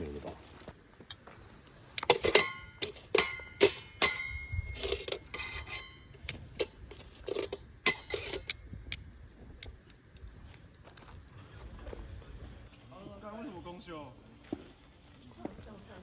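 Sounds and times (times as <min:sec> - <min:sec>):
metal dishes clinking and clattering: 0:02.0 - 0:08.6.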